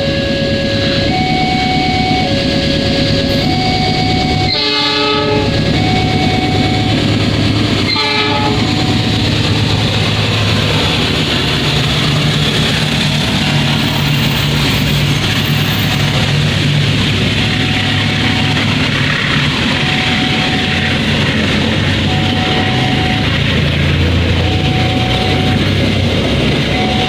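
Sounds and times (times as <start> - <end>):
train horn blasts: 0.0 - 9.7, 17.0 - 25.9
two-note warning tone: 0.0 - 9.8, 17.2 - 27.0
locomotive engine hum: 0.0 - 27.0.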